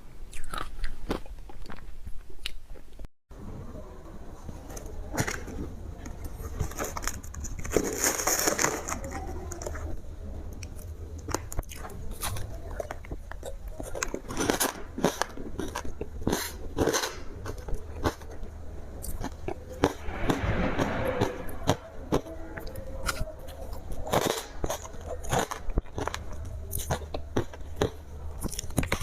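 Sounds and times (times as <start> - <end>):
person chewing crunchy ice: 0.3 - 2.8, 11.6 - 18.3.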